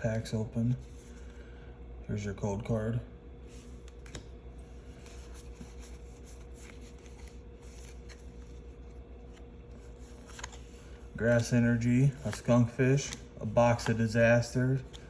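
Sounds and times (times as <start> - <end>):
trading cards rustling: 3.7 - 15.0.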